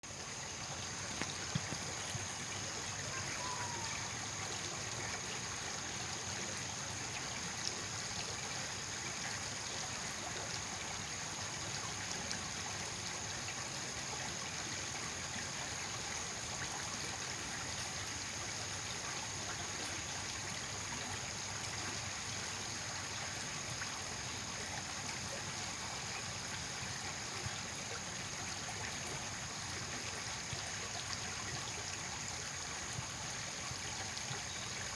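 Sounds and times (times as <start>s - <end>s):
water trickling: 0.0s - 34.9s
faint ticks: 1.1s - 2.0s.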